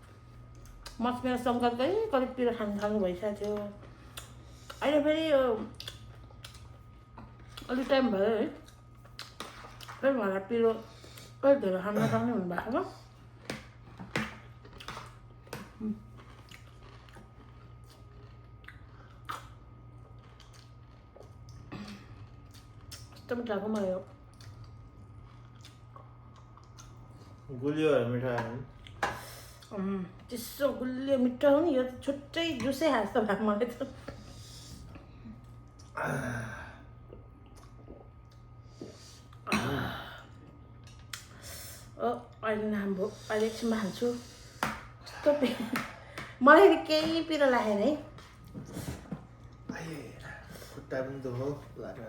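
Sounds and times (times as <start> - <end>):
steady low hum: 0.0 - 52.0
chewing crunchy snack: 13.2 - 23.3, 24.2 - 27.4
person sighing: 36.0 - 36.8.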